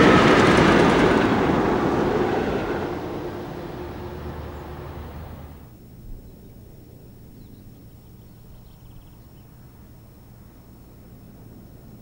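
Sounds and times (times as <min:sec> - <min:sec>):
steam train rumble: 0:00.0 - 0:05.7.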